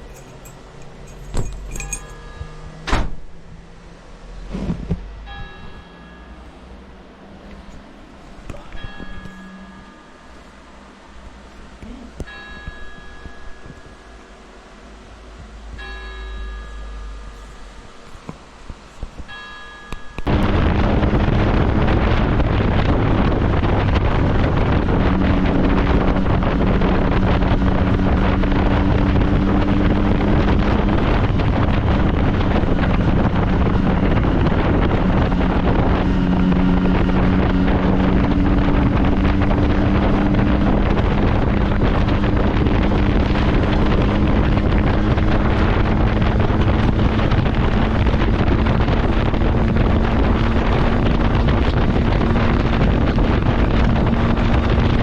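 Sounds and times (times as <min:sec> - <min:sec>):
motorcycle engine running: 0:00.0 - 0:02.7, 0:20.2 - 0:55.0
wind noise on microphone: 0:00.0 - 0:03.7, 0:04.4 - 0:06.4, 0:11.0 - 0:14.2, 0:15.0 - 0:55.0.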